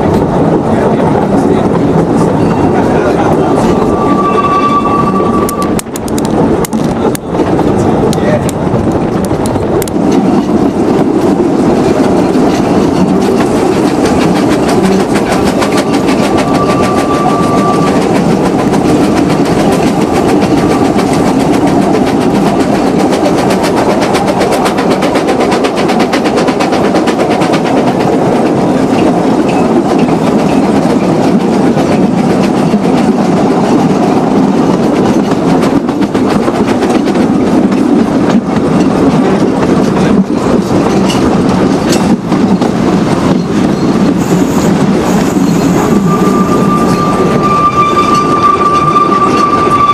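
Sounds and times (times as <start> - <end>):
train wheels clattering on track: 0.0 - 49.9
short high note: 3.6 - 5.8.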